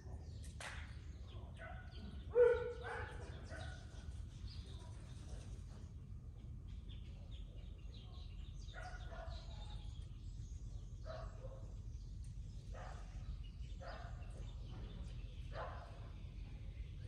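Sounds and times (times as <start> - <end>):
birds chirping: 0.0 - 17.0
distant dog barking: 1.5 - 3.9, 8.7 - 9.8, 11.0 - 11.8, 12.7 - 14.5, 15.5 - 16.2.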